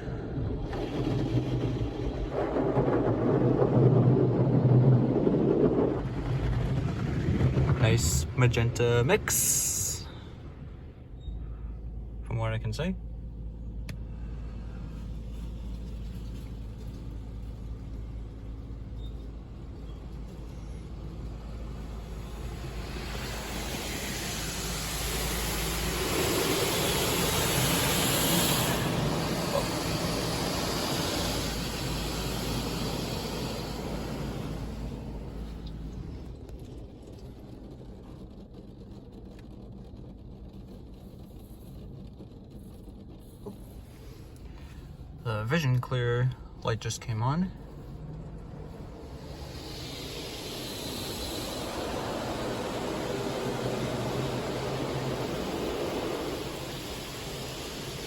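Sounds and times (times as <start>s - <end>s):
car wash equipment rumbling: 0.0s - 58.0s
steady low hum: 0.0s - 58.0s
spray hissing on car: 21.4s - 35.4s, 42.5s - 45.2s, 47.6s - 58.0s.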